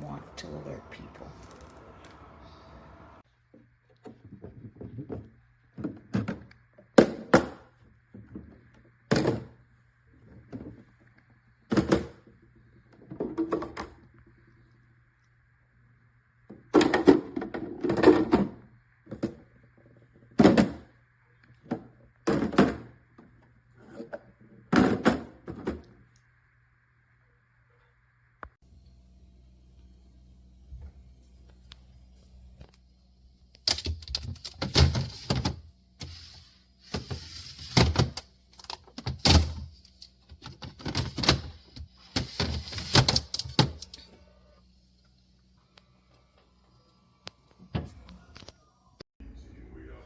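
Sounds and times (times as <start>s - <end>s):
faint low hum: 0.0s - 50.0s
plastic bins knocking and clunking: 4.1s - 9.6s, 11.7s - 12.3s, 13.0s - 14.0s, 16.5s - 19.4s, 20.4s - 20.9s, 21.6s - 23.3s, 24.7s - 25.9s.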